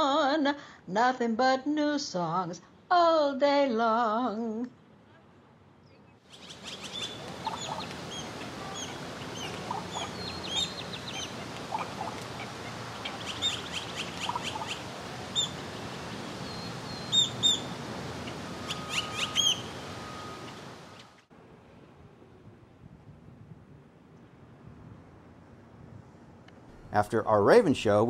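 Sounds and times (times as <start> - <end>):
birds chirping: 5.8 - 21.2.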